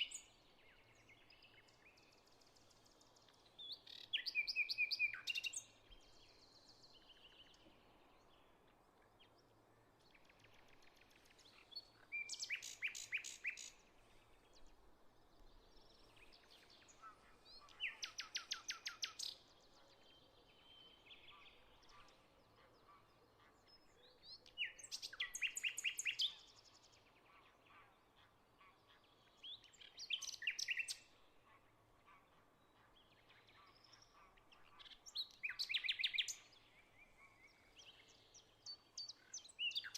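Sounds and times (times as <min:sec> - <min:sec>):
songbird trilled song: 0:00.0 - 0:07.7, 0:10.1 - 0:13.8, 0:15.3 - 0:22.0, 0:23.7 - 0:26.9, 0:29.2 - 0:31.2, 0:33.0 - 0:39.9
faint bird calls: 0:16.0 - 0:26.5.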